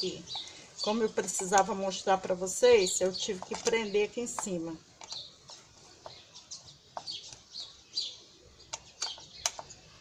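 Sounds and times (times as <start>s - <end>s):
small birds chirping: 0.0s - 10.0s
sharp clicks: 8.6s - 9.8s.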